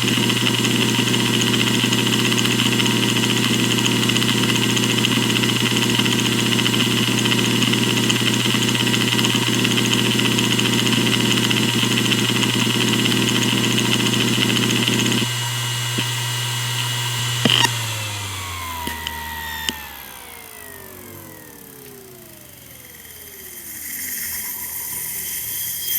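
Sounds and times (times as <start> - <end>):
drive spinning down whine: 0.0 - 25.9
hard drive head seek ticking: 0.0 - 25.9
hard drive spindle hum: 0.0 - 25.9
sharp click: 17.4 - 17.8.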